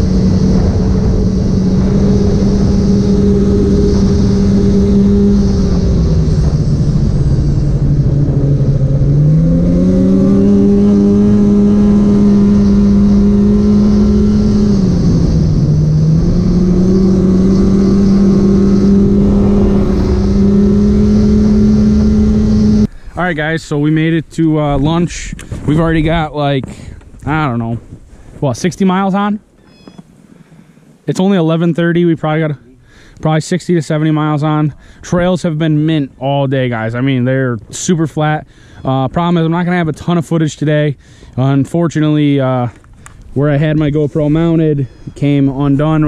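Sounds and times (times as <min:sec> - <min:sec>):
snowmobile engine running: 0:00.0 - 0:27.8, 0:41.4 - 0:46.0.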